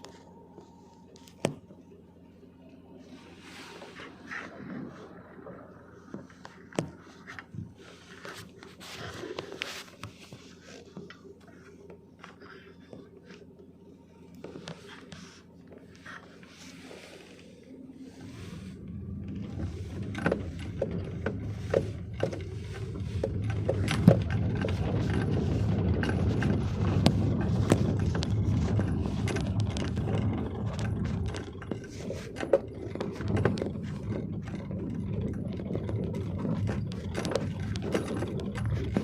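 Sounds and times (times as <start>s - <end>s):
vehicle rumble on rough road: 0.0s - 39.0s
rattles and knocks: 18.2s - 39.0s.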